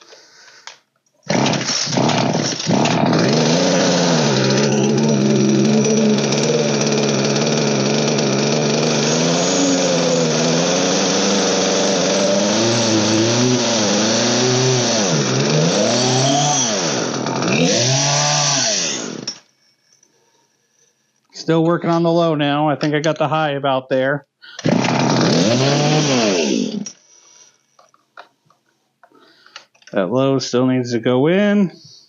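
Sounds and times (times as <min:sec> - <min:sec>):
chainsaw engine revving: 0:01.3 - 0:19.4, 0:24.6 - 0:27.0.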